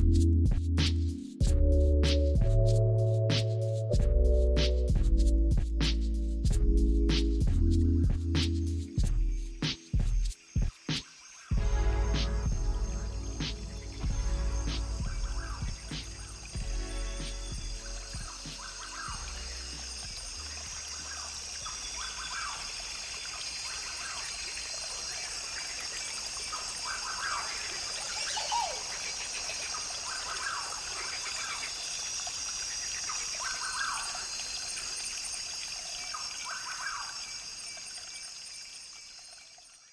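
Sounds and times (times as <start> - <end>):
steady high hiss: 9.6 - 39.4
brook trickling: 10.2 - 39.9
bird calling: 15.0 - 16.4, 26.6 - 29.1.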